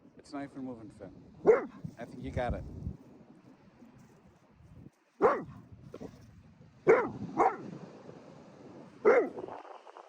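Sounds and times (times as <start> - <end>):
dog barking: 1.4 - 1.8, 5.2 - 5.6, 6.8 - 7.7, 9.0 - 9.4.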